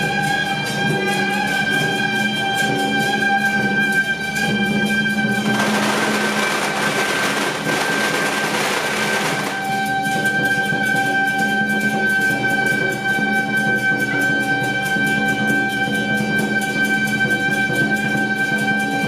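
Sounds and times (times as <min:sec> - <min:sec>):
fast percussion strikes: 0:04.2 - 0:19.0.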